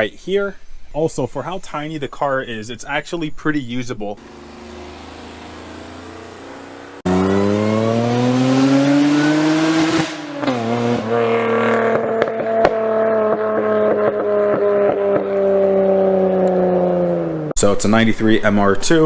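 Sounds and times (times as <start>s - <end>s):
car engine accelerating: 4.2s - 17.6s.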